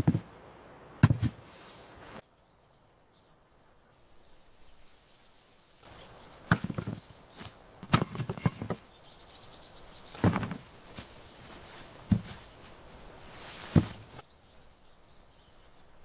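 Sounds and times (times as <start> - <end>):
knocks and clattering thumps: 0.0 - 0.3, 1.0 - 1.4, 6.5 - 7.1, 7.8 - 8.8, 10.2 - 11.1, 12.1 - 12.4, 13.7 - 14.2
faint outdoor background: 0.0 - 16.0.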